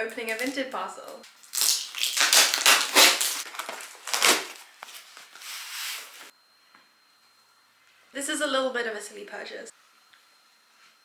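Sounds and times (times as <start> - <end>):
packaging ripping and rustling: 0.1 - 6.3.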